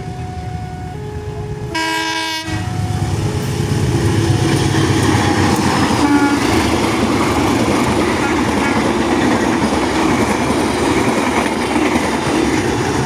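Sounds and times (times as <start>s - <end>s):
locomotive engine rumbling: 0.0s - 13.0s
locomotive horn blast: 0.1s - 4.3s, 5.9s - 6.7s
coach wheels clattering on rails: 2.9s - 13.0s.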